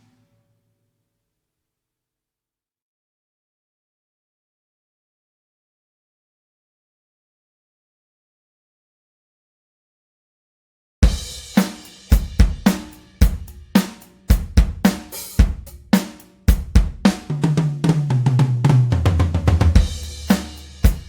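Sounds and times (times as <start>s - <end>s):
drum kit playing a beat: 11.0s - 21.0s
tom drum fill: 11.0s - 21.0s.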